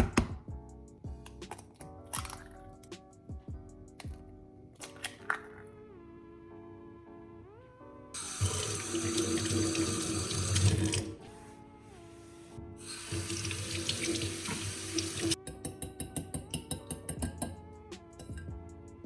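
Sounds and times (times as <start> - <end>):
tap water running into sink: 8.2 - 11.2, 12.9 - 15.4.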